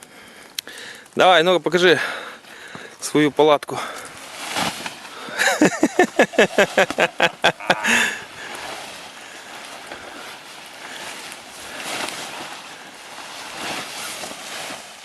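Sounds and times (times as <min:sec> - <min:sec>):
low outdoor background noise: 0:00.0 - 0:15.0
person laughing: 0:05.3 - 0:08.4.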